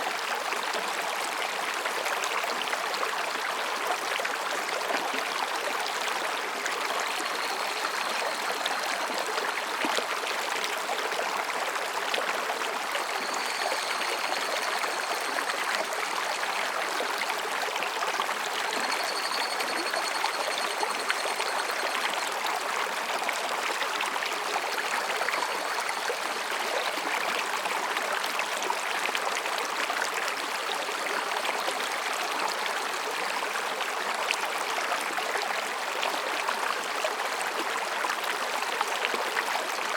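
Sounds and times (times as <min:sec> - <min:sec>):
stream rushing over rocks: 0:00.0 - 0:39.9
cicadas ringing calls: 0:13.0 - 0:16.2, 0:18.7 - 0:22.3.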